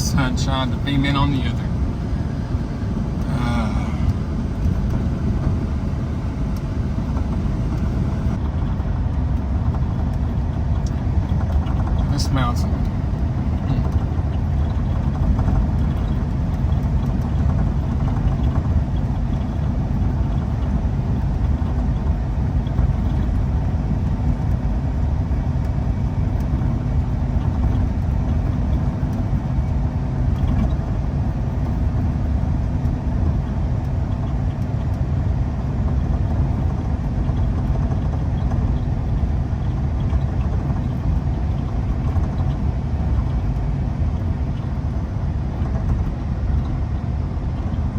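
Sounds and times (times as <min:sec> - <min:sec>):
diesel truck engine drone: 0:00.0 - 0:47.9
road noise: 0:00.0 - 0:47.9.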